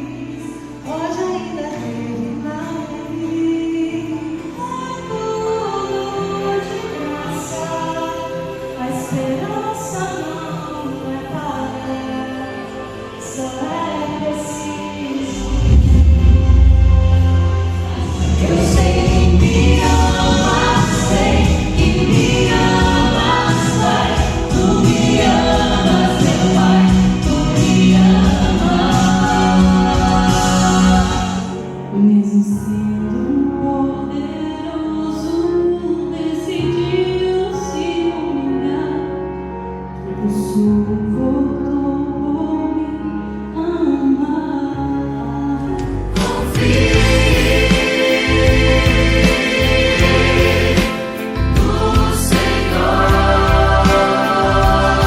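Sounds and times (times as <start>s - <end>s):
choir singing a hymn: 0.0s - 41.5s, 43.8s - 55.0s
instrumental accompaniment: 45.0s - 55.0s.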